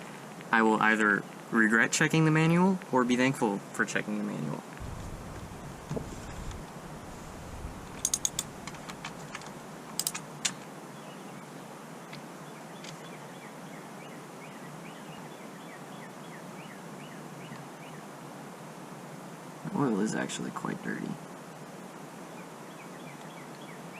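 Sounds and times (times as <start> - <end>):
steady hiss: 0.0 - 12.4
metallic clicks of hand tools: 7.8 - 10.6.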